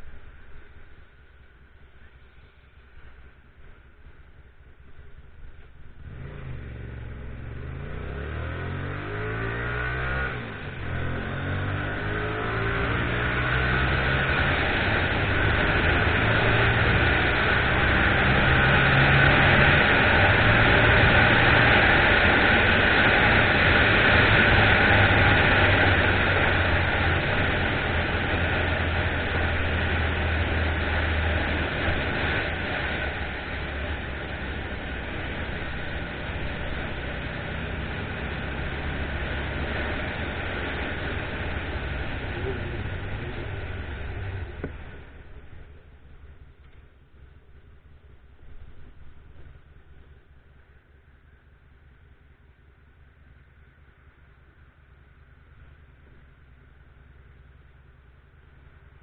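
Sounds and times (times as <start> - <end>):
motorcycle engine revving: 5.1 - 51.0.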